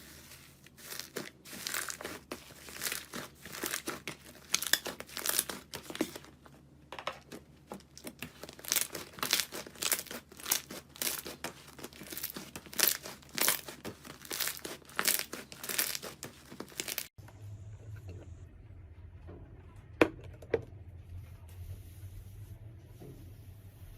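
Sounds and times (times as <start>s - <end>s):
slime crackling and popping: 0.7s - 6.1s, 7.8s - 17.1s
quiet low hum: 17.2s - 23.9s.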